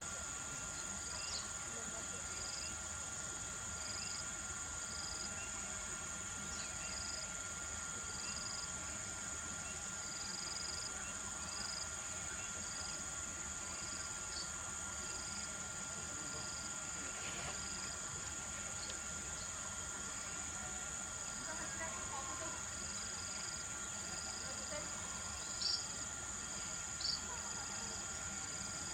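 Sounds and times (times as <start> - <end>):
insects buzzing drone: 0.0 - 28.9
insect chirps: 0.3 - 28.9.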